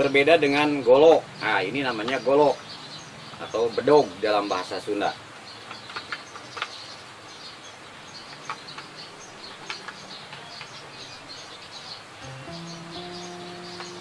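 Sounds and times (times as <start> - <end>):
small birds chirping: 0.0 - 14.0
steady low tone: 12.2 - 14.0.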